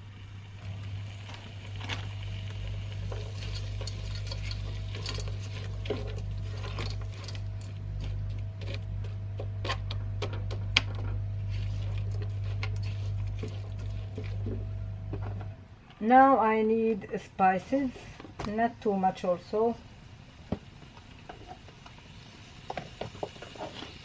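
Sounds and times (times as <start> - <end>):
steady low hum: 0.0 - 22.8
spoon scraping and clinking pot: 3.0 - 8.8.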